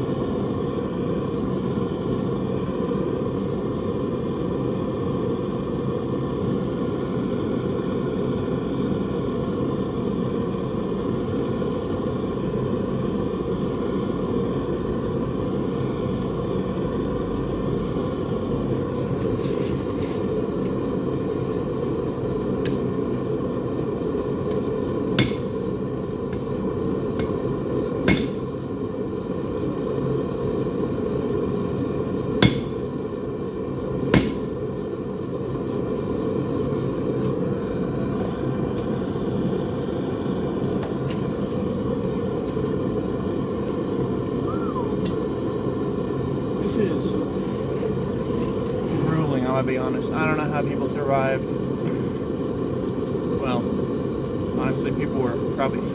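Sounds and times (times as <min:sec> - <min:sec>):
hammer striking metal: 0:25.2 - 0:25.6, 0:28.0 - 0:28.5, 0:32.4 - 0:32.8, 0:34.1 - 0:34.5.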